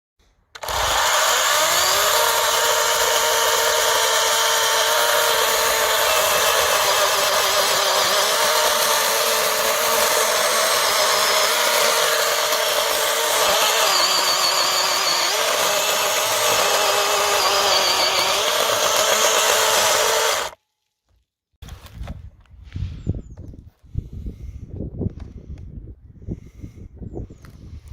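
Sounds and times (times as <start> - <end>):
electric chainsaw motor whining: 0.6 - 20.6.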